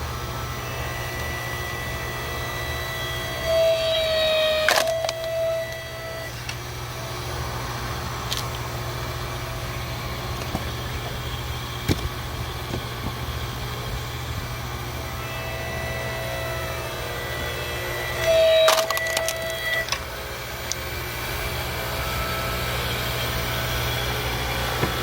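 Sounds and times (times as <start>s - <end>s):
log splitter motor humming: 0.0s - 25.0s
motor whine: 0.0s - 25.0s.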